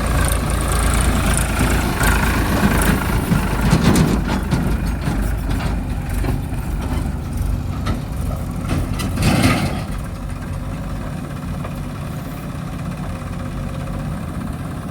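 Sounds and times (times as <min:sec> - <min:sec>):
heavy diesel engine running: 0:00.0 - 0:14.9.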